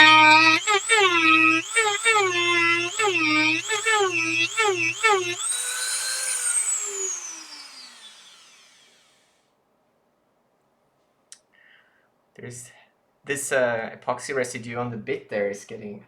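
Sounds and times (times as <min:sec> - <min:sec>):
rotary tool grinding: 0:00.0 - 0:09.2.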